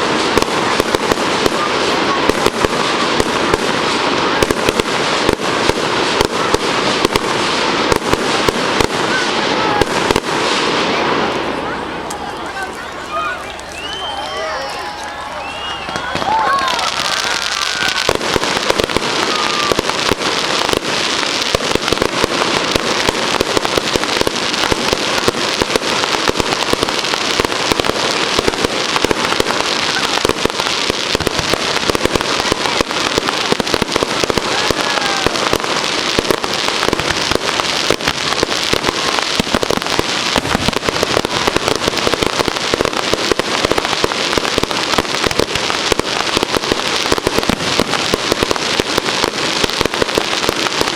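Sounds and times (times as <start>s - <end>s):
fireworks cracking and banging: 0.0s - 50.9s.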